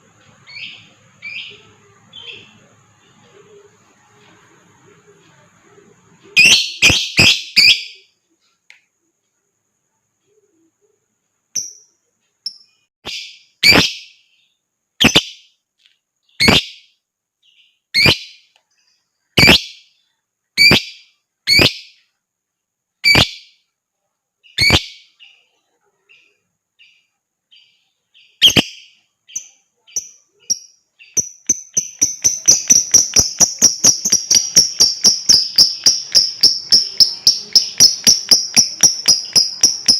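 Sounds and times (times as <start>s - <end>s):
lovebird shrill calls: 6.4s - 8.0s, 13.0s - 14.1s, 16.4s - 16.8s, 17.9s - 18.4s, 19.4s - 19.8s, 20.6s - 22.0s, 23.0s - 23.5s, 24.5s - 25.1s, 28.4s - 39.9s.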